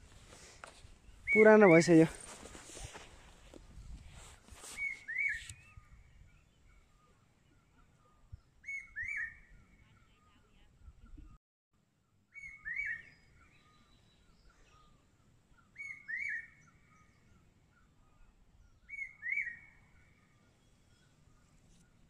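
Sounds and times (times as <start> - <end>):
bird whistling call: 1.2 - 1.9, 4.7 - 5.9, 8.6 - 9.7, 12.3 - 13.8, 15.7 - 17.1, 18.8 - 19.9.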